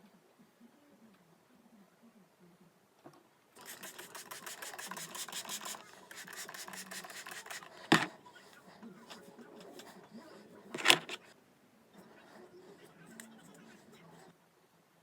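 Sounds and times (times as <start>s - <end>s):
fast scratchy rasping: 3.6s - 8.0s.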